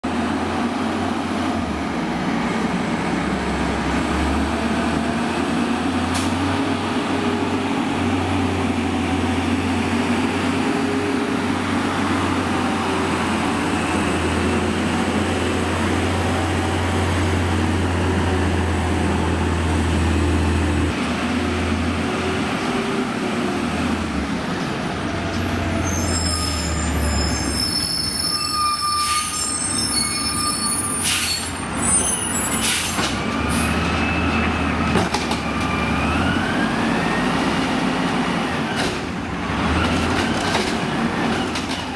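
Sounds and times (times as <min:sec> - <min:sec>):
high-pitched squealing: 0:25.1 - 0:34.6.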